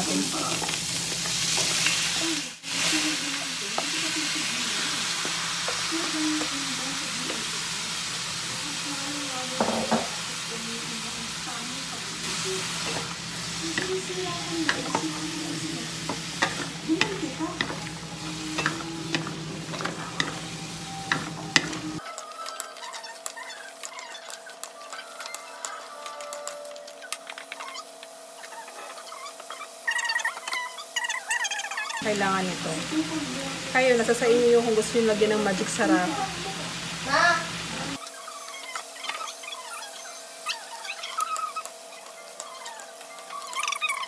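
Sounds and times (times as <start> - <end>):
food sizzling in oil in a wok: 0.0 - 44.0
spatula scraping a wok: 10.5 - 32.1.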